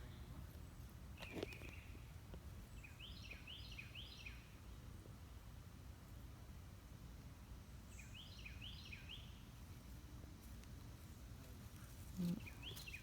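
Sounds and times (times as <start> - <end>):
faint outdoor background noise: 0.0 - 13.0.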